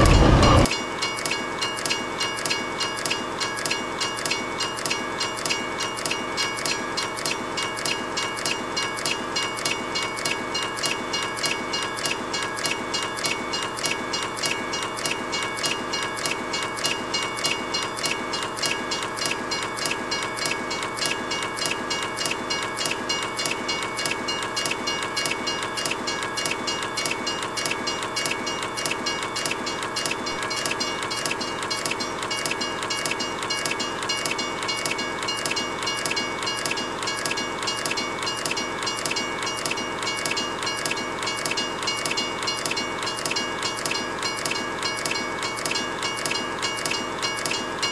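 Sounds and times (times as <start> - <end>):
steady high tones: 0.0 - 0.7.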